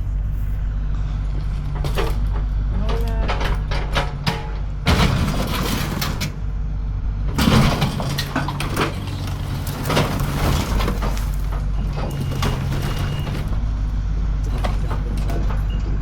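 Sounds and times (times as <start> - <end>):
demolition machine running: 0.0 - 16.0
structure crunching and cracking: 7.3 - 15.7.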